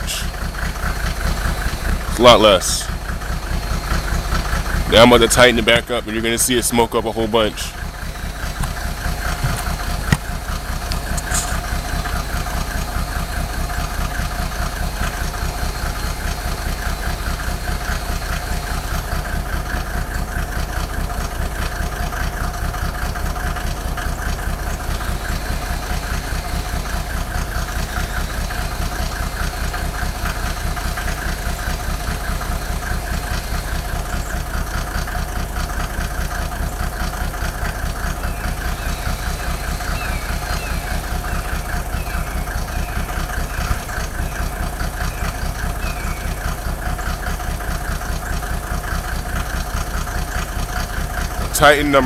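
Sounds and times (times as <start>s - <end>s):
diesel engine idling: 0.0s - 52.0s.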